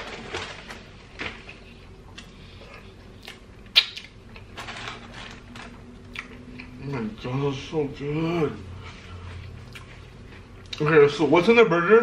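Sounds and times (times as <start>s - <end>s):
man chewing: 1.4s - 4.6s, 5.7s - 7.1s, 8.8s - 10.8s
mouth smacking and clicking: 3.2s - 4.2s.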